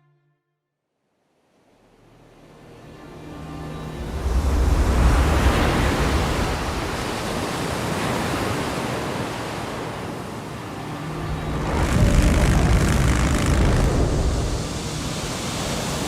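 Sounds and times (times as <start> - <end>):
rushing wind: 3.9 - 16.0.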